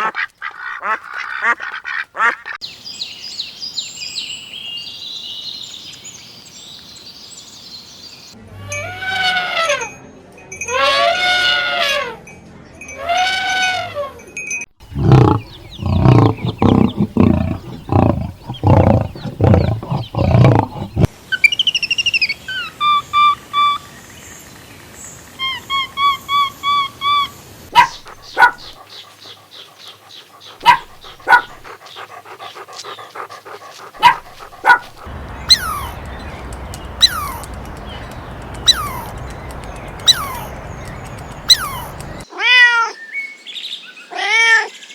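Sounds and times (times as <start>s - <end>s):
pitched animal call: 14.8s - 21.4s, 25.4s - 42.2s
bird chirps and calls: 14.9s - 23.9s, 25.4s - 42.2s
dog barking: 27.7s - 42.2s.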